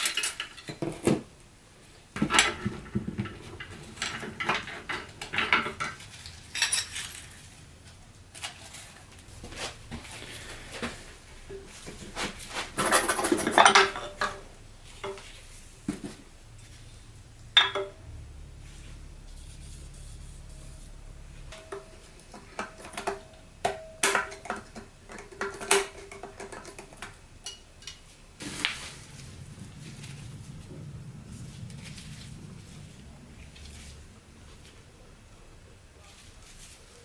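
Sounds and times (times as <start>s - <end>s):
metal parts clattering: 0.0s - 0.8s, 2.2s - 7.6s, 12.8s - 15.2s
metal parts clinking and knocking: 0.0s - 0.8s, 2.2s - 7.5s, 12.8s - 15.2s, 21.5s - 28.1s.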